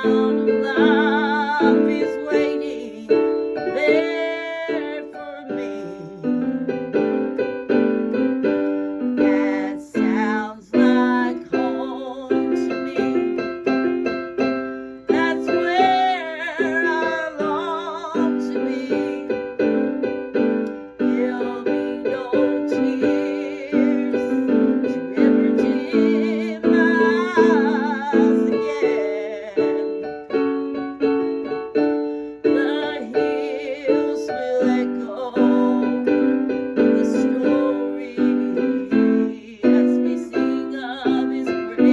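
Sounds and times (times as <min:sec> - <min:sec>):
piano playing repeated chords: 0:00.0 - 0:41.9.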